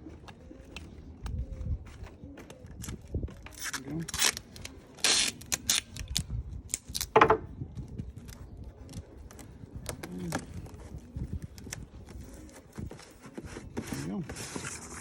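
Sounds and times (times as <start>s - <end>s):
packing tape pulled off roll: 2.8s - 7.1s.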